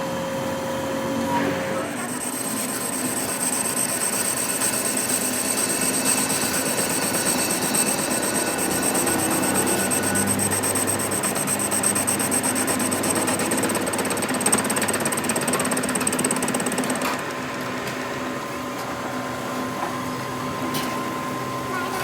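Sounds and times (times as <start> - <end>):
power tool rattling and whining: 0.9 - 18.7.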